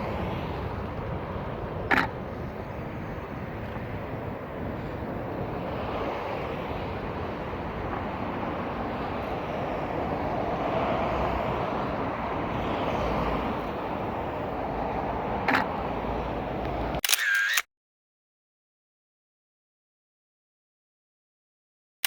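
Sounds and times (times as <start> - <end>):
jet engines at takeoff: 0.0 - 17.6.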